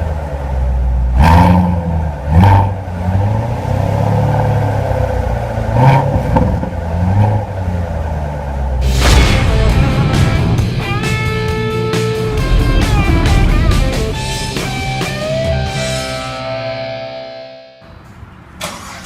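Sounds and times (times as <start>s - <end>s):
car exhaust low rumble: 0.0s - 16.3s
loud rushing burst: 8.8s - 16.8s.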